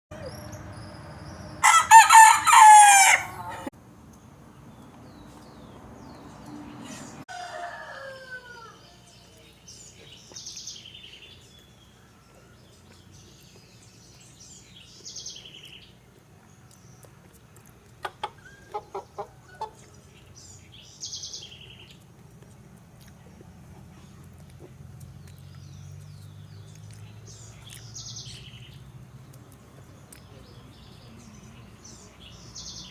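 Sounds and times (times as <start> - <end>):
rooster crowing: 1.6 - 3.7, 7.3 - 9.2.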